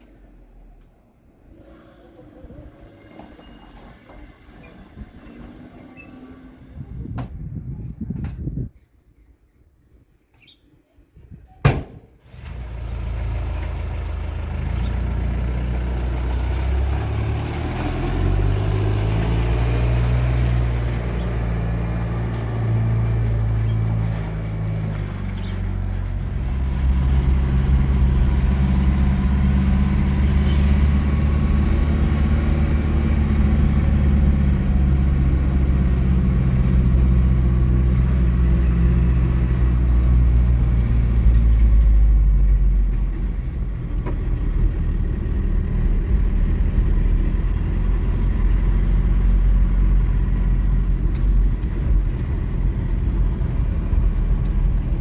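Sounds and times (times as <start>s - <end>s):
car engine hum: 12.3s - 55.0s
rough low rumble: 13.3s - 55.0s.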